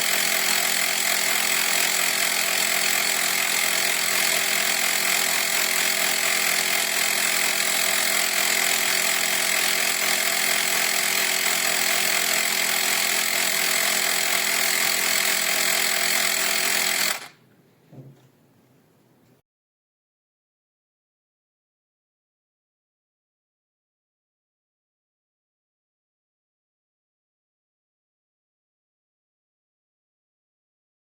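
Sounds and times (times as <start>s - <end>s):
electric tyre compressor whining: 0.0s - 17.4s
faint knock: 17.9s - 18.4s.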